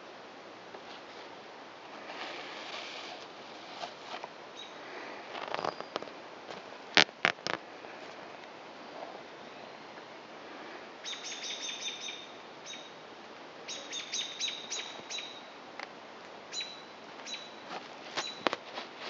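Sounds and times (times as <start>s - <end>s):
songbird chirping: 4.5s - 4.8s, 11.0s - 13.0s, 13.6s - 15.6s, 16.5s - 18.6s.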